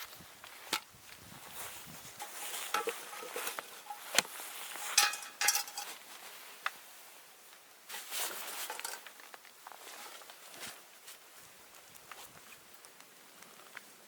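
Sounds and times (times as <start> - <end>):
metal cookware clinking: 2.2 - 4.2, 4.8 - 6.0, 8.6 - 9.0.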